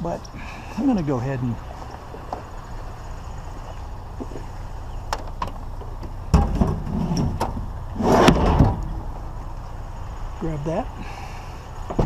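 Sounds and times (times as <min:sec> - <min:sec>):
heavy thump: 0:06.3 - 0:09.0
loud scraping rush: 0:08.0 - 0:09.2.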